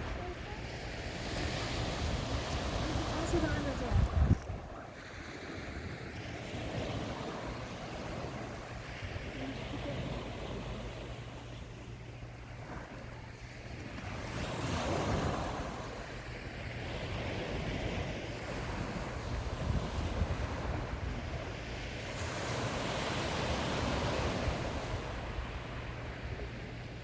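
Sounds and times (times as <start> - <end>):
wind buffeting microphone: 0.0 - 9.4, 16.8 - 27.0
sea waves washing onto shore: 0.0 - 27.0.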